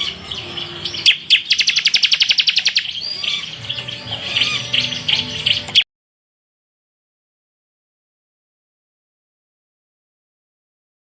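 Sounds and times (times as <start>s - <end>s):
bird singing high chirps: 0.0s - 5.8s.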